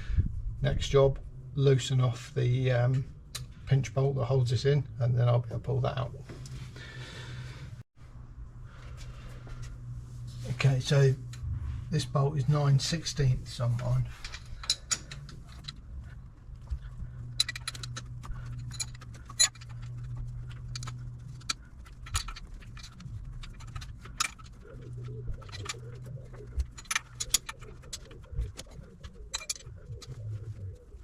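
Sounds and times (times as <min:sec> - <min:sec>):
steady low hum: 0:00.0 - 0:31.0
metallic spanner clicks: 0:17.3 - 0:24.6, 0:29.3 - 0:30.1.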